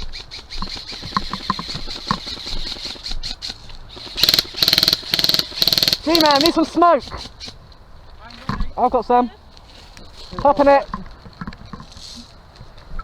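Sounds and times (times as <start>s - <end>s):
airsoft gun firing bursts: 0.0s - 6.6s
scattered clicks and knocks: 3.9s - 6.6s.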